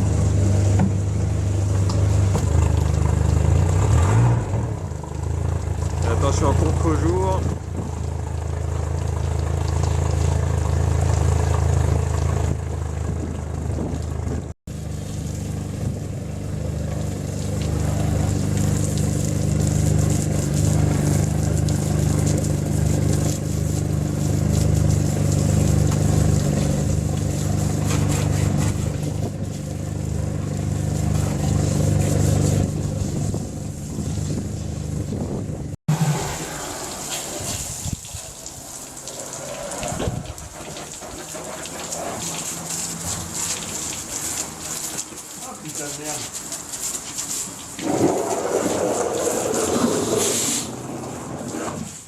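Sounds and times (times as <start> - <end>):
outboard engine running: 0.0 - 52.0.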